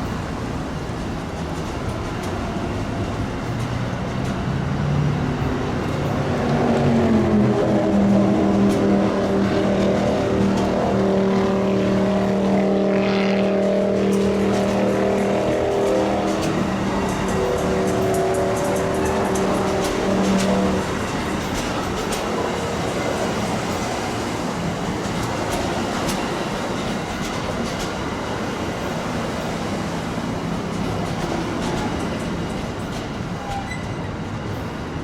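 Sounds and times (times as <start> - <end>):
diesel locomotive engine revving: 4.5 - 26.3.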